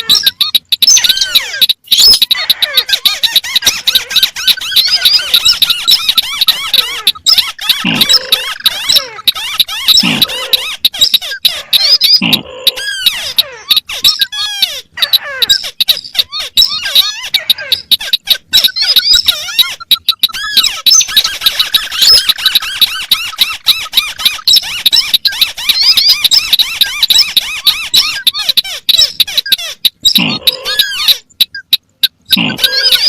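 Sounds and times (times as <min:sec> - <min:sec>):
birds chattering squeakily: 0:00.0 - 0:33.0.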